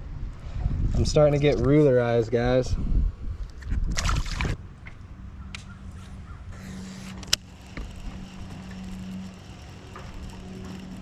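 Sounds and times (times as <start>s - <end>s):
steady low hum: 4.6s - 11.0s.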